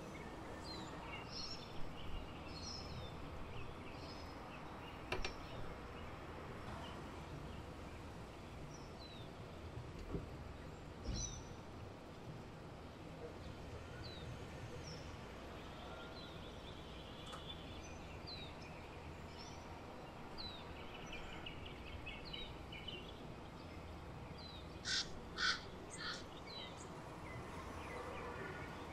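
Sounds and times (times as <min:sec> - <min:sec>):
harsh bird calls: 0:24.8 - 0:26.9.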